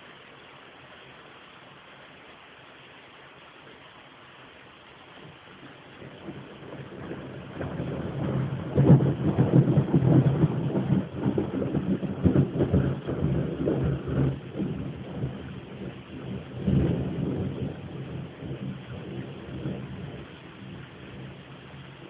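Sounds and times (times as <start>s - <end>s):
thunder rumbling: 5.3s - 22.0s.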